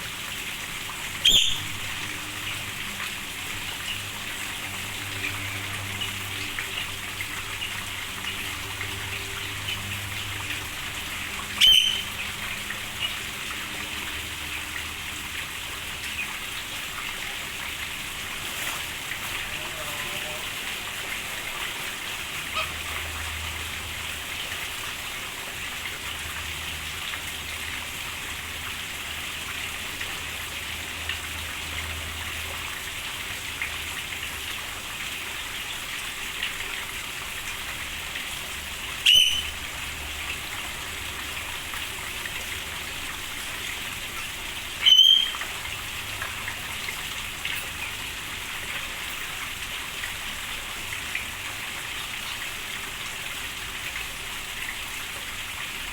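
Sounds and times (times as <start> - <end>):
rain hissing: 0.0 - 25.5
loud bird calls: 1.2 - 2.0, 11.6 - 12.3, 39.1 - 39.6, 44.8 - 45.4.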